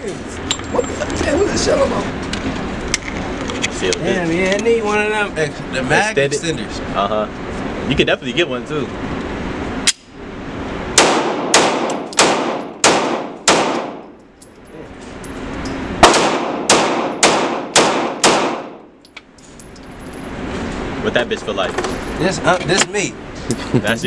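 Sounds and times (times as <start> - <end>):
handgun shots: 11.0 - 14.0, 16.0 - 18.8.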